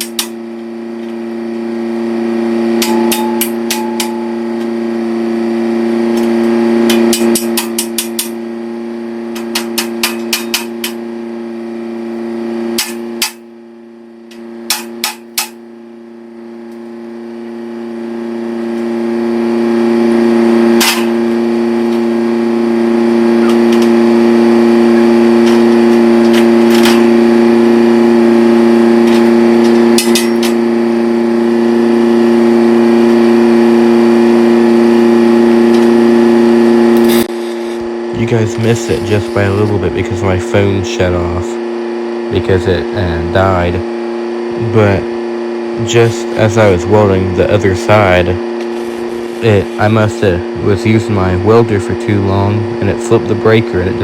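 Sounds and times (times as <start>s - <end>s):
electric welder humming: 0.0s - 54.0s.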